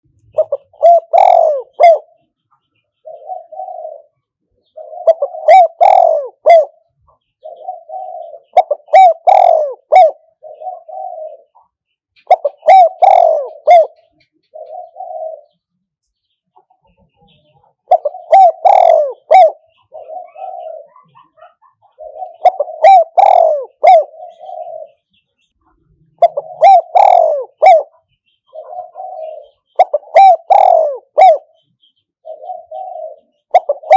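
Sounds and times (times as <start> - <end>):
dove cooing: 0.3 - 2.3, 3.0 - 15.7, 16.6 - 33.9.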